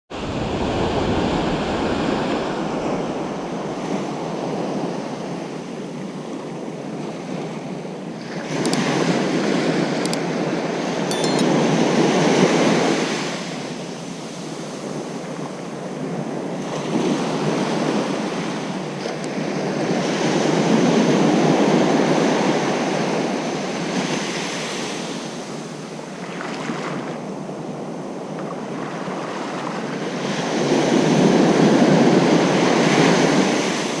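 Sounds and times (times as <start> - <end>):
wind on microphone: 0.1 - 5.8
ocean waves breaking on beach: 0.1 - 11.0, 11.8 - 34.0.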